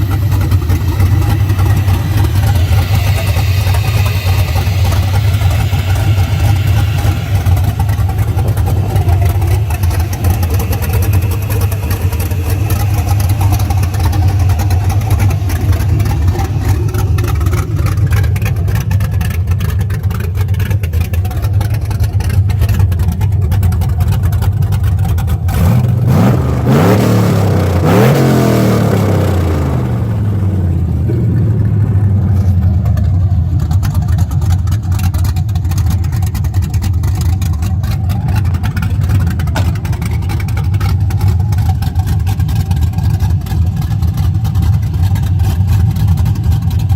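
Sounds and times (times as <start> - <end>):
car engine lopey idle and revving: 0.0 - 46.9.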